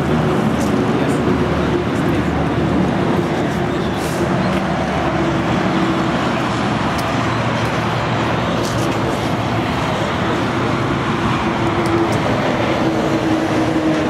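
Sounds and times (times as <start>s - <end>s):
motorcycle engines running: 0.0s - 14.0s.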